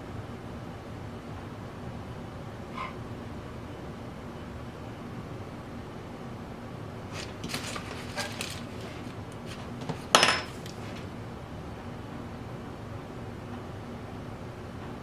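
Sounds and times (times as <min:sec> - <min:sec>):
metal clink with ring: 0:10.2 - 0:10.6.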